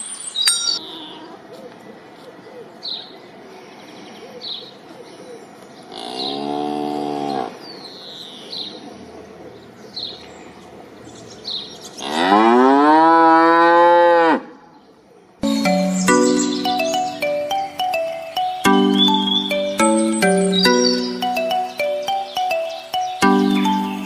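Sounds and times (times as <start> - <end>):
small birds chirping: 0.0 - 1.1, 15.4 - 24.0
chiming music: 0.3 - 0.8, 15.4 - 24.0.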